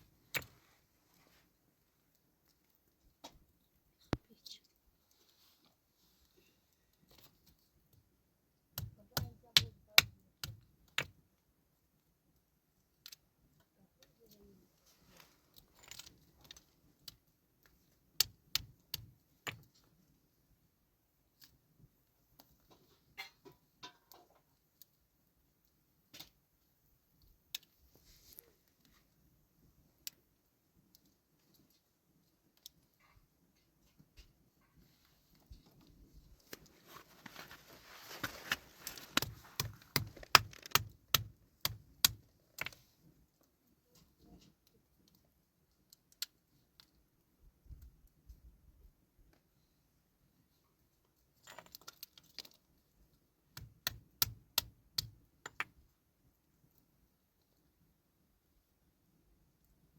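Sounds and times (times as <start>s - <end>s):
hard objects clicking and knocking: 39.0s - 42.8s, 53.6s - 55.8s.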